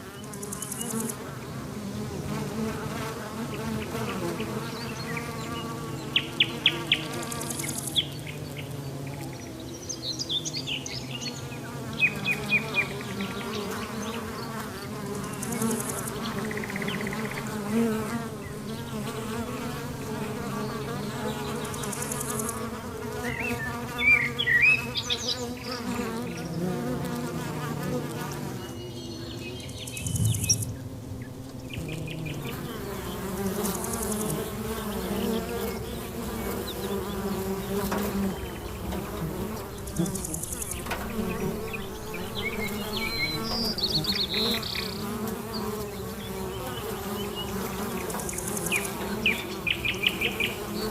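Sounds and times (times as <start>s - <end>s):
flying insects buzzing: 0.0s - 50.9s
bird chirps: 28.4s - 50.9s.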